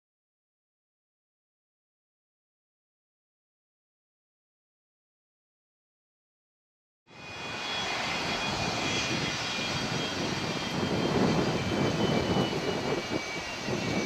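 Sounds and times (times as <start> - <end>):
jet engines running: 7.1 - 14.0.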